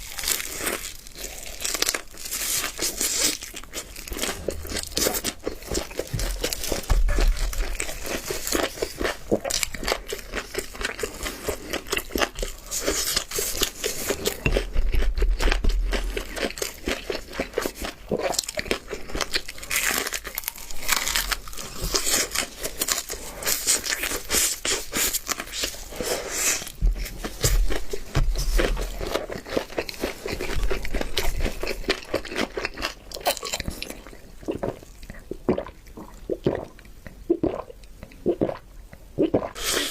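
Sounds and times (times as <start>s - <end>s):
crispy chicken crunching: 0.0s - 35.3s
low thuds: 4.2s - 8.0s, 26.8s - 29.1s.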